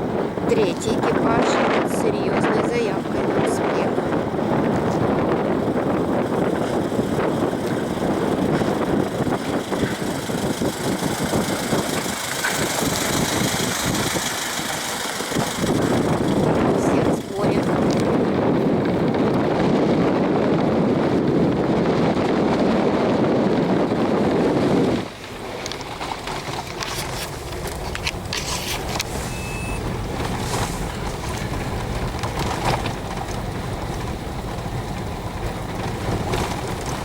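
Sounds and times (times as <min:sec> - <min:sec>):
car driving on rough road: 0:00.0 - 0:37.0
knocks and rattles: 0:06.1 - 0:18.1, 0:25.2 - 0:29.1, 0:29.8 - 0:37.0.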